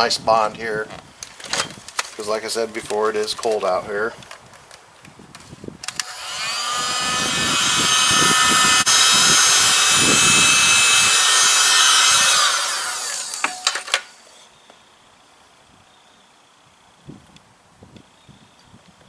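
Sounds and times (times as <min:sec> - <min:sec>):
heat gun clicks: 0:05.8 - 0:14.2
heat gun fan motor whine: 0:05.8 - 0:14.4.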